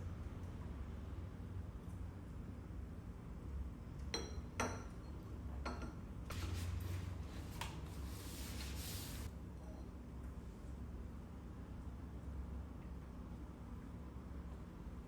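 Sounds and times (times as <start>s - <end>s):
dishes clinking: 4.1s - 6.0s
soft brushing noise: 6.3s - 9.3s.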